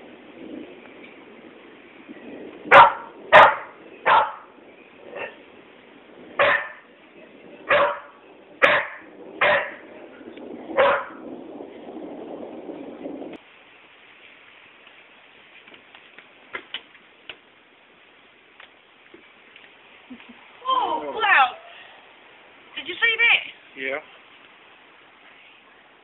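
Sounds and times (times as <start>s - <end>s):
dog barking: 2.7s - 4.5s, 6.4s - 6.8s, 7.7s - 9.9s, 10.8s - 11.2s
low hiss: 11.5s - 26.0s.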